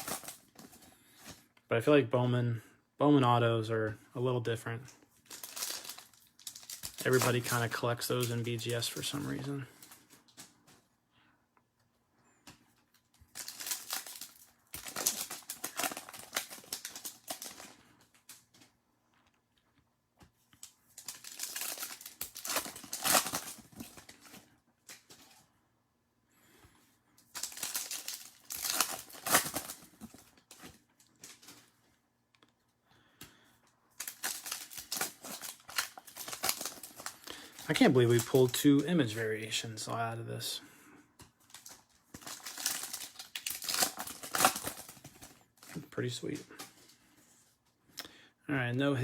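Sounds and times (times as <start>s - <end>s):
card pack wrappers crinkling: 0.0s - 1.3s, 5.2s - 10.5s, 13.0s - 18.6s, 20.5s - 25.4s, 27.2s - 31.8s, 33.9s - 39.9s, 41.4s - 47.0s
cards being handled: 27.4s - 31.7s.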